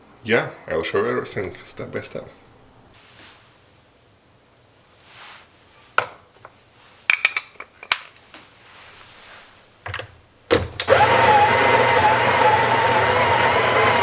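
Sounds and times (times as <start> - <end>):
clicks and knocks of parts handled: 6.0 - 8.4
electric coffee grinder whining: 10.8 - 14.0.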